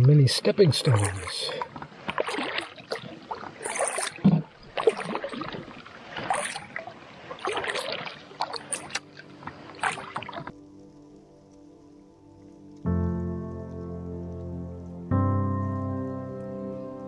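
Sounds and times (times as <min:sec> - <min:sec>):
paddle strokes in water: 0:00.0 - 0:12.7
faint steady music tones: 0:07.0 - 0:17.0.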